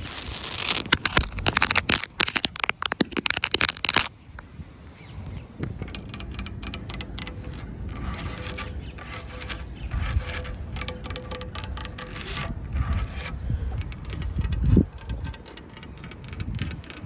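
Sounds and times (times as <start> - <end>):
dry leaves and twigs crackling: 0.0 - 4.2.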